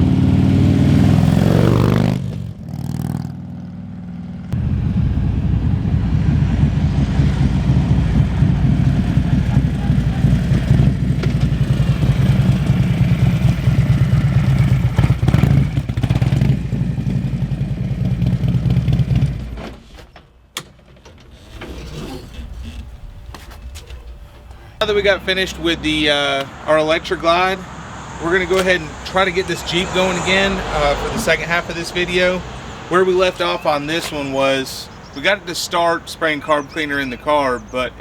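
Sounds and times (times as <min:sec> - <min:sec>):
motorcycle engine running loud: 0:00.0 - 0:19.6.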